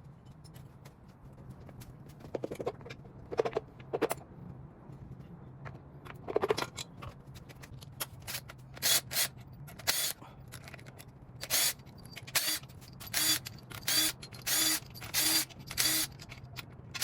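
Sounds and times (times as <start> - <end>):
engine parts knocking and clinking: 9.7 - 17.0.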